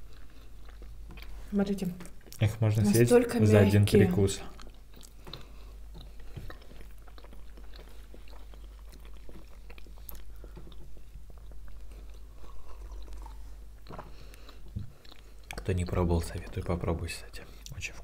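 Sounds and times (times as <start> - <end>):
people chewing soft cake: 0.0 - 18.0.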